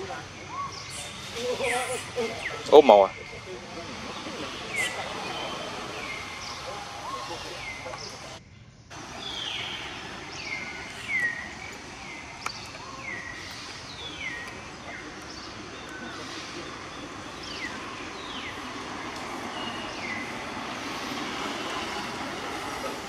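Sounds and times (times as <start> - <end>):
steady outdoor hiss: 0.0 - 23.0
bird whistling downward notes: 9.2 - 23.0.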